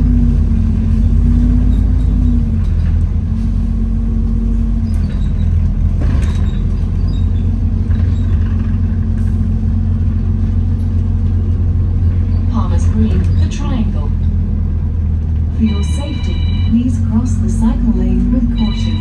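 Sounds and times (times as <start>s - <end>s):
bus engine rumble: 0.0s - 19.0s
droning hum: 7.6s - 19.0s.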